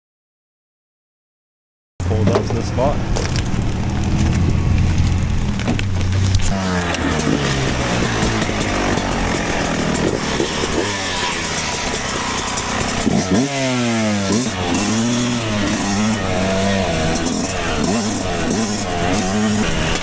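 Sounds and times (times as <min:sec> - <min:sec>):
dirt bike engine revving: 0:02.0 - 0:20.0.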